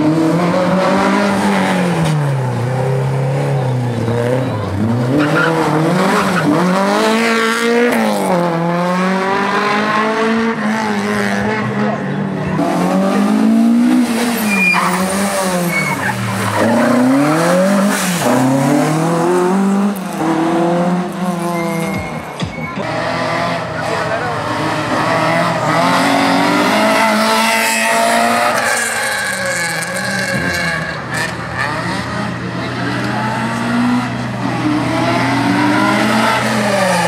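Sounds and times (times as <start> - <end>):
car engine revving: 0.0 - 37.0
tyre squeals: 14.3 - 18.1, 21.2 - 23.0.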